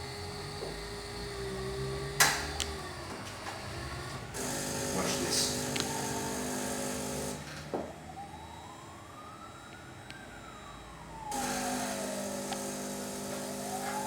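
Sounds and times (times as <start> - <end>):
machine hum: 0.0 - 7.5, 11.3 - 14.0
wailing siren: 4.9 - 6.5, 7.8 - 14.0.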